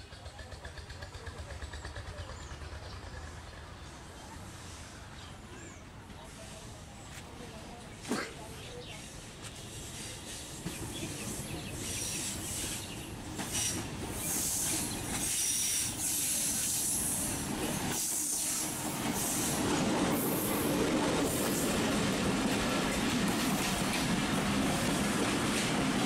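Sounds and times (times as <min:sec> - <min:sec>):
locomotive rumble: 0:00.0 - 0:08.0
steel wheels hissing and squealing: 0:09.7 - 0:20.6.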